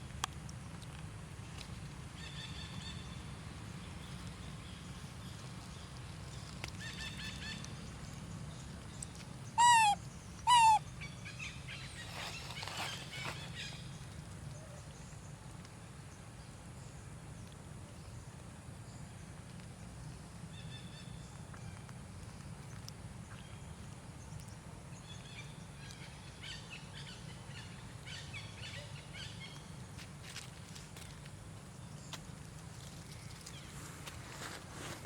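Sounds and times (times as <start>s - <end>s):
faint chirps: 9.6s - 10.9s
high-pitched animal calls: 9.6s - 10.9s.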